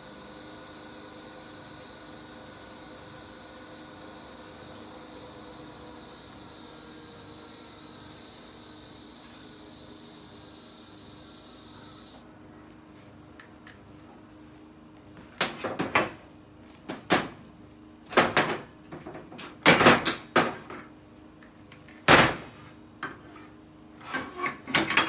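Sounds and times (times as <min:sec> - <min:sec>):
knocks and clatters of objects: 0:15.2 - 0:16.2, 0:18.1 - 0:20.9.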